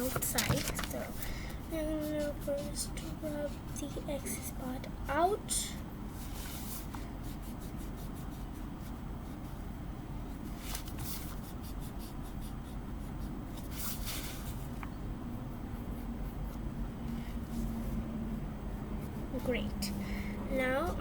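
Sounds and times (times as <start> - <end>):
eraser rubbing on paper: 1.7 - 4.5, 6.2 - 9.8, 10.4 - 14.7
low hum: 14.8 - 21.0.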